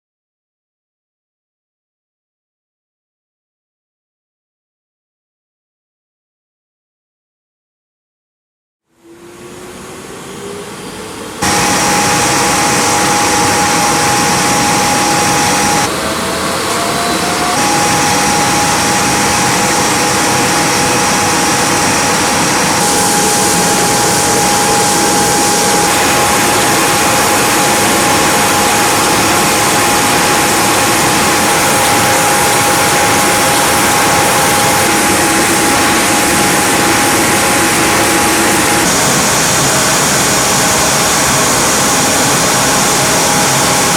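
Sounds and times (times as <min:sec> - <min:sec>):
sanding machine running: 0:11.4 - 0:43.9.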